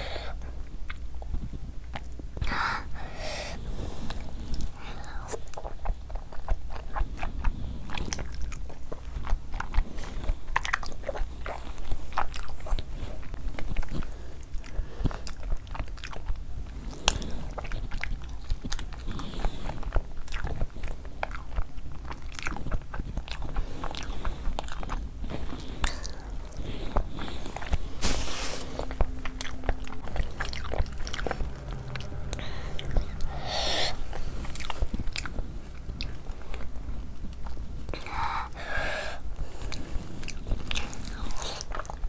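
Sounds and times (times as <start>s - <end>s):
wet chewing and lip smacks: 0.4s - 2.5s, 4.1s - 28.0s, 28.7s - 33.4s, 39.4s - 42.0s.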